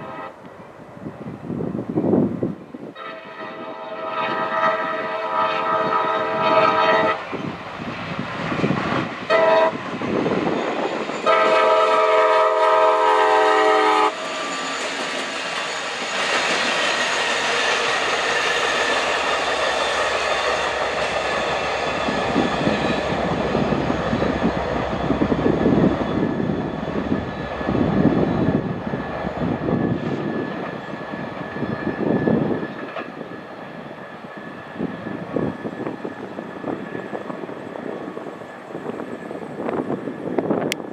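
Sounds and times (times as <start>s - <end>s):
locomotive air horn: 0.0s - 0.4s, 3.0s - 7.4s, 9.3s - 9.8s, 11.2s - 14.2s, 18.4s - 19.9s
train engine and wheel noise: 0.0s - 40.9s.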